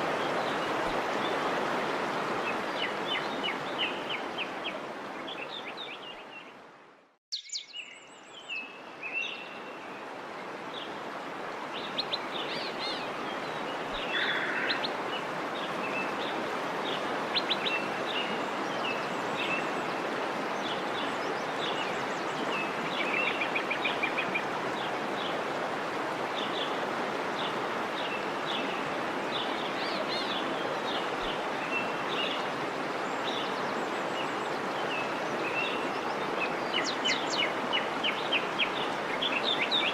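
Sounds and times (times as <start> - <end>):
small birds chirping: 7.3 - 9.6.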